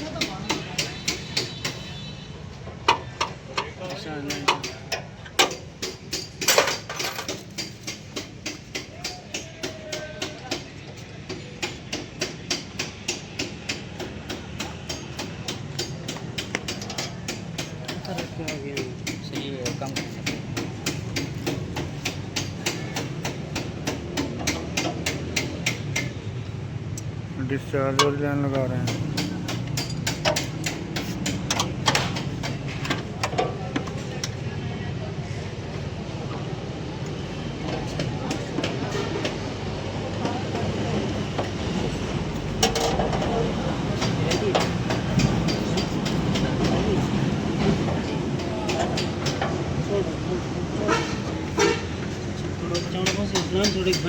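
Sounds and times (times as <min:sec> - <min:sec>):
hand tools clicking on metal fittings: 0:02.9 - 0:10.6, 0:27.9 - 0:34.4, 0:52.4 - 0:54.0.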